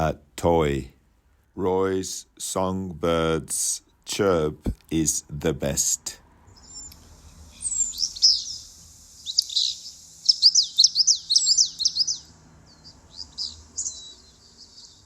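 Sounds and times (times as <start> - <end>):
songbird chirping: 6.4 - 15.0.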